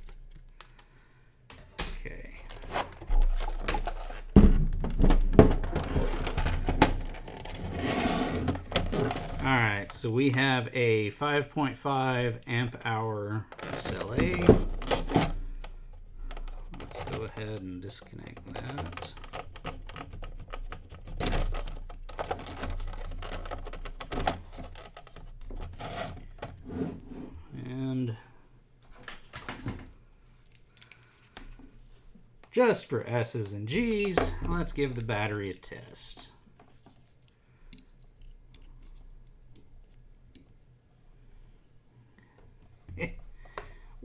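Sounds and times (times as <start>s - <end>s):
plastic and metal being handled: 0.0s - 27.8s, 28.8s - 40.6s
knocks and clicks of battery handling: 13.6s - 26.6s.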